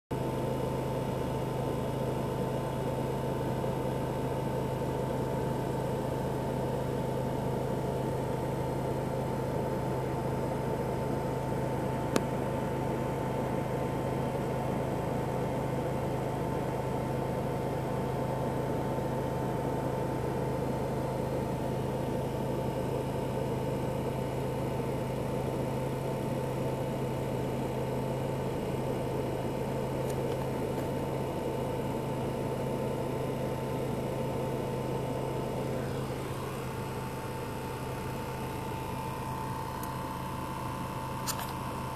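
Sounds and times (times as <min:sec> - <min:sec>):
car engine idling: 0:00.2 - 0:41.9
sharp click: 0:41.2 - 0:41.6.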